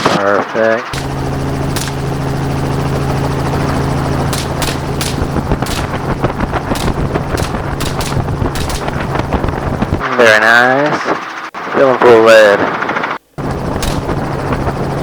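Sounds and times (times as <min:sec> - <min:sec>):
helicopter engine and rotor: 0:00.0 - 0:15.0
gunshots: 0:00.9 - 0:02.2, 0:04.2 - 0:10.0, 0:13.8 - 0:14.2.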